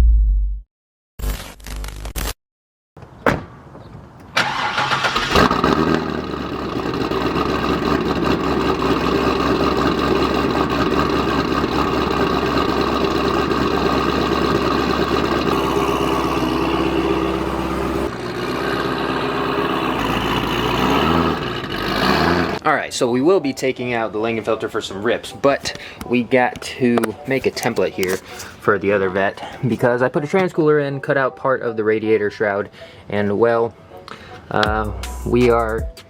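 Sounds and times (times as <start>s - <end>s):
car engine starting and idling: 4.3s - 22.6s.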